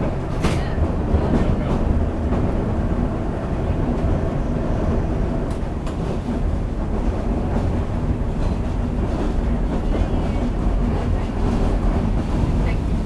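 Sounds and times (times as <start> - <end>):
streetcar rumbling on rails: 0.0 - 13.0.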